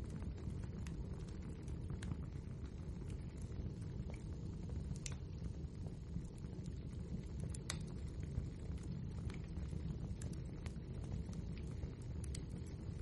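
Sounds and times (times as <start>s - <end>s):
fire crackling and popping: 0.0s - 13.0s
wood fire rumbling: 0.0s - 13.0s.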